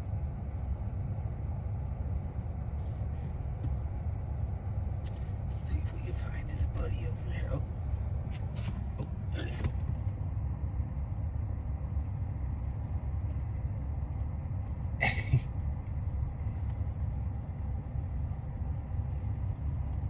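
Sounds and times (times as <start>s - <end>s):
vehicle engine idling: 2.8s - 10.5s.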